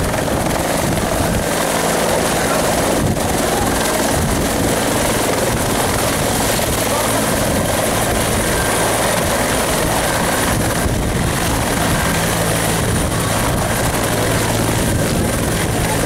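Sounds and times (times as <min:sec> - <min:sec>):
helicopter rotor noise: 0:00.0 - 0:16.0
high turbine whine: 0:00.0 - 0:16.0.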